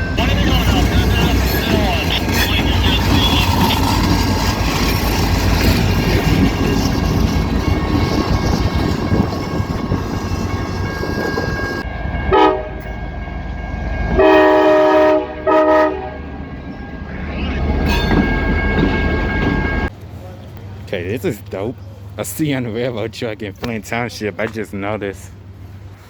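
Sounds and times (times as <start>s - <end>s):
loud steady rumble: 0.0s - 11.9s
chorded air horn blasts: 12.3s - 12.9s, 14.1s - 16.3s.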